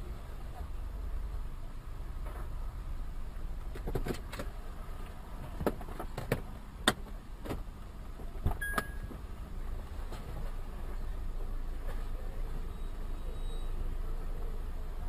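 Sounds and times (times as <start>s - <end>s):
car driving rumble: 0.0s - 15.0s
high beep: 8.6s - 9.1s.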